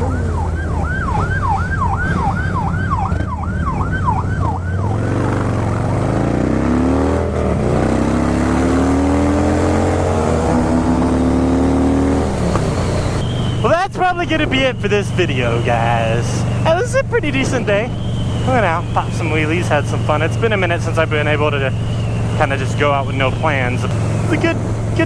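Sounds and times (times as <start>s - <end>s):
police siren yelping: 0.0s - 5.6s, 12.9s - 25.0s
engine accelerating through gears: 0.0s - 13.6s, 14.4s - 25.0s
motorcycle engine rumbling: 0.0s - 25.0s.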